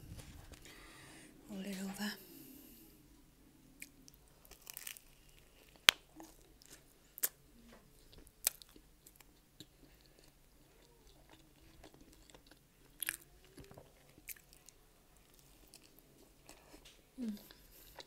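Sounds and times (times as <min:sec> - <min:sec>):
chewing pizza: 0:03.8 - 0:18.0.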